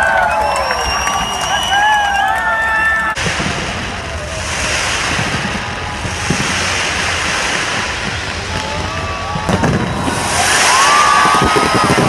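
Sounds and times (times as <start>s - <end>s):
fireworks crackling: 0.0s - 12.0s
fireworks whistles: 0.0s - 12.0s
fireworks bang: 3.1s - 12.0s
fireworks thuds: 3.2s - 12.0s.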